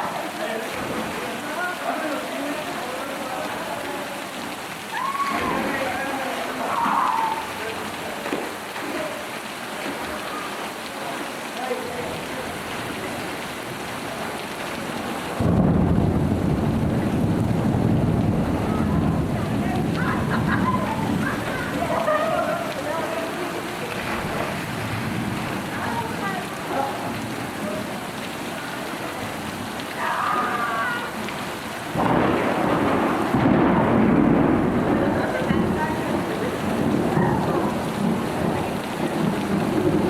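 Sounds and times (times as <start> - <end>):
rain falling on water: 0.0 - 40.0.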